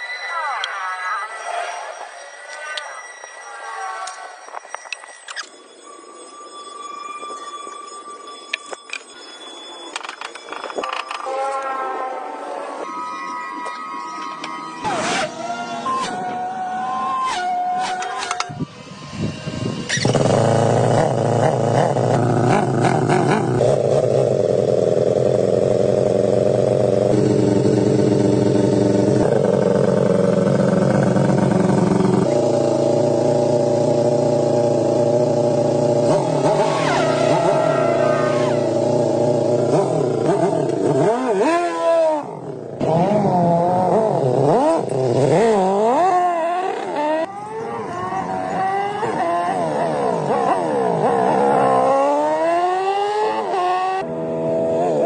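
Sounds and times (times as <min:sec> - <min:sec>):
motorcycle engine revving: 0:19.1 - 0:55.0.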